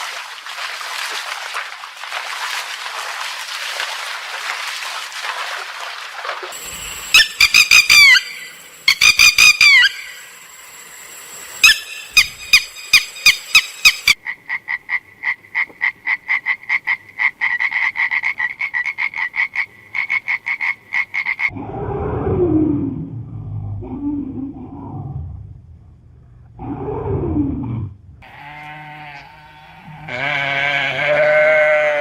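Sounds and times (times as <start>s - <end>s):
animal calling: 6.7s - 10.3s, 11.6s - 14.2s.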